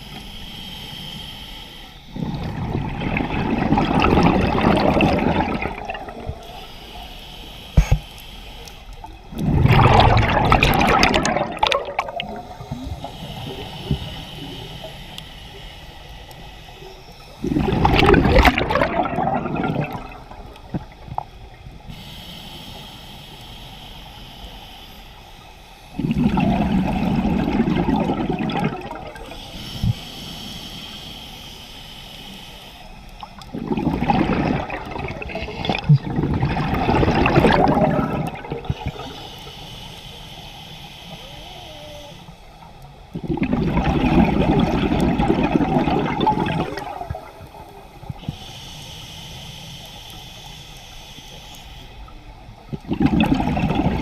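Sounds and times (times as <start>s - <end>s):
exhaled bubbles underwater: 2.1s - 6.6s, 9.0s - 15.2s, 16.3s - 21.8s, 25.9s - 30.0s, 33.2s - 39.5s, 41.4s - 48.4s, 52.0s - 54.0s.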